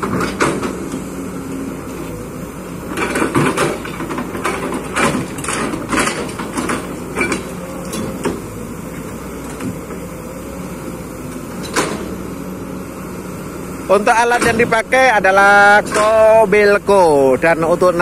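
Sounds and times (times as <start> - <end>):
excavator engine running: 0.0 - 18.0
sharp clanks and scrapes: 2.9 - 8.4.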